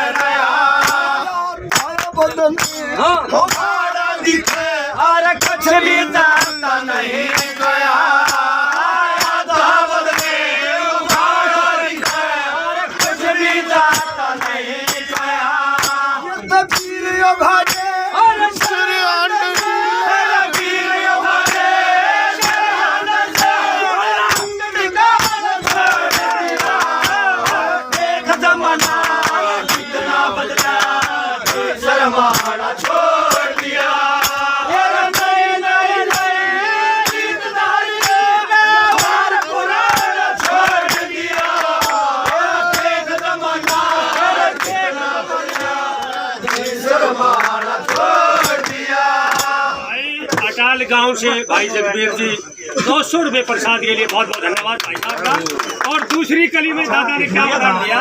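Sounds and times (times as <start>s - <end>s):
men singing: 0.0s - 52.5s
steady drum beat: 7.3s - 46.0s.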